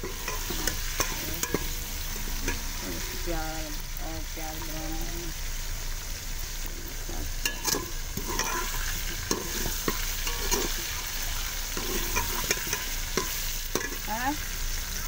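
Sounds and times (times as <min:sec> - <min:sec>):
steel ladle scraping a pot: 0:00.0 - 0:03.2, 0:06.8 - 0:14.1
chicken and onions sizzling in oil: 0:00.0 - 0:15.0.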